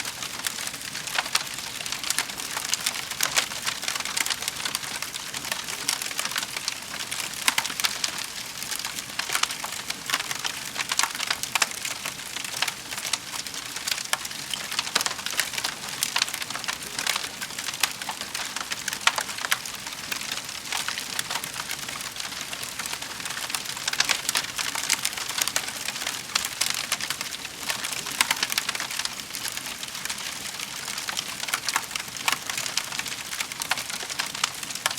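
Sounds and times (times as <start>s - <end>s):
wood fire crackling and popping: 0.0s - 34.9s.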